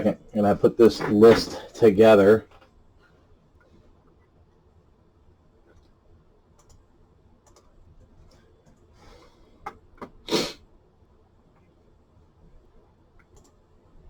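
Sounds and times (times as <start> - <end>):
computer keys and mouse clicking: 6.6 - 8.9, 13.2 - 13.6.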